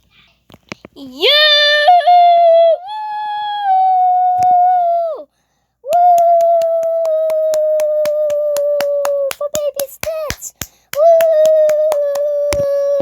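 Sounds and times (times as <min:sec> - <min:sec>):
quick even claps: 0:05.9 - 0:12.8.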